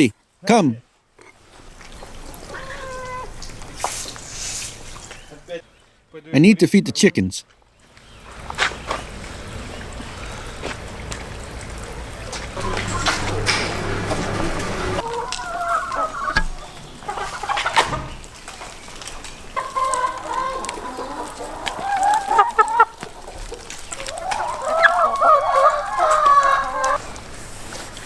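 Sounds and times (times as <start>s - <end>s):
chickens calling: 11.4s - 27.0s
rooster crowing: 12.6s - 16.4s.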